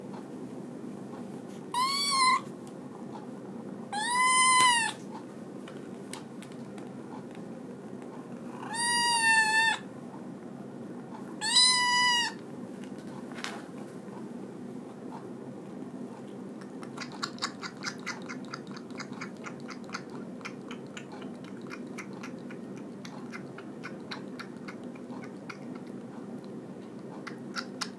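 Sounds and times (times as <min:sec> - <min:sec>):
kitten meowing: 0:01.7 - 0:02.5, 0:03.9 - 0:05.0, 0:08.6 - 0:09.9, 0:11.4 - 0:12.4.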